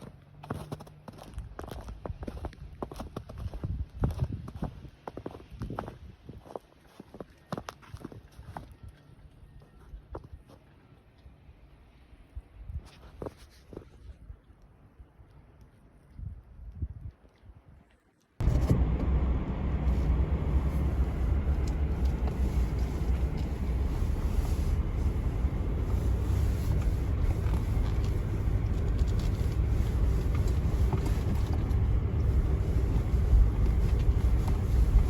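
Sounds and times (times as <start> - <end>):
low rumble with hiss: 18.4 - 35.0.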